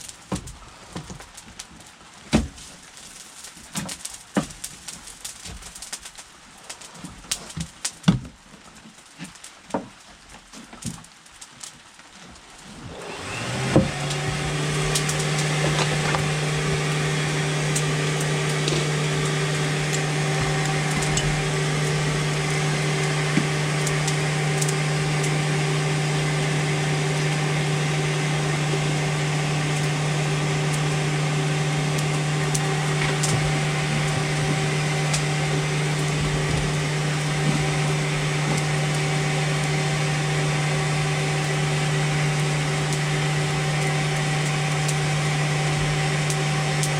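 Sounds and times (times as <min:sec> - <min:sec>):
electric motor humming: 0:12.8 - 0:46.9.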